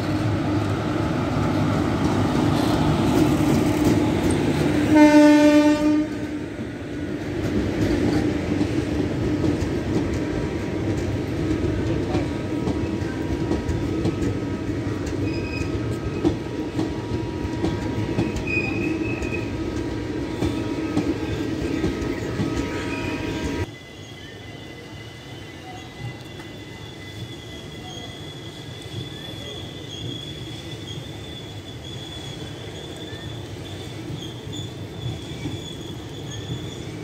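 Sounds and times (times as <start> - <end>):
train coaches rumbling: 0.0 - 37.0
faint wheel squeal: 15.2 - 16.3, 20.5 - 37.0.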